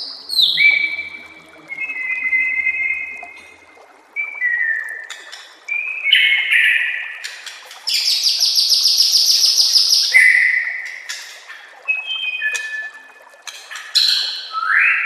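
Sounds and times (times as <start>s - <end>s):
bird singing whistled notes: 0.0s - 3.3s, 11.9s - 13.1s, 14.3s - 15.0s.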